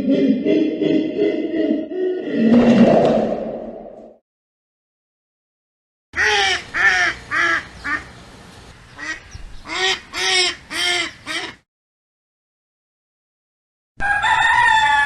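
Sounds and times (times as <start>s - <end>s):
duck quacking: 6.2s - 8.1s, 9.0s - 11.6s.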